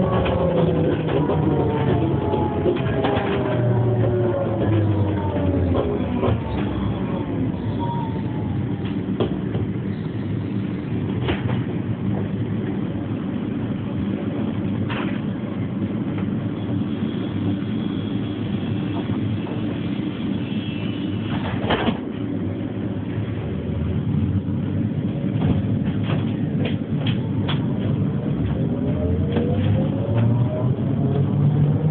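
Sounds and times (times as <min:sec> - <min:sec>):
tram rumbling: 0:00.0 - 0:31.9.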